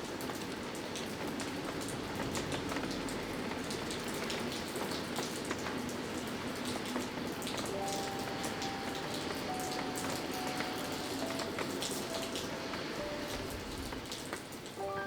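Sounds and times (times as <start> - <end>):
raindrops ticking: 0.0 - 15.0
heavy rain hissing: 5.8 - 15.0.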